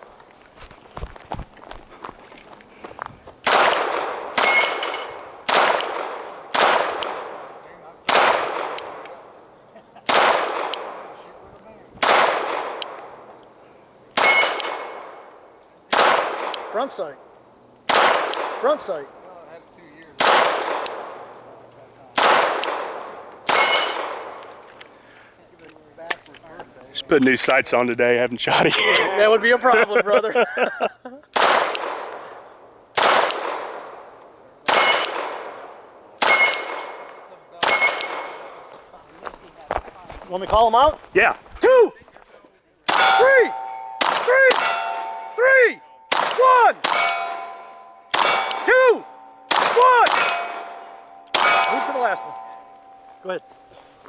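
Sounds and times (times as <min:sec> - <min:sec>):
pistol shots echoing: 0:03.4 - 0:11.4, 0:12.0 - 0:13.3, 0:14.1 - 0:15.3, 0:15.9 - 0:17.1, 0:17.9 - 0:19.0, 0:20.1 - 0:24.7, 0:31.3 - 0:38.8, 0:42.8 - 0:53.4
short metallic ring: 0:04.4 - 0:05.4, 0:14.2 - 0:15.1, 0:23.5 - 0:24.4, 0:36.2 - 0:38.6, 0:43.0 - 0:46.1, 0:46.9 - 0:49.5, 0:50.1 - 0:54.0.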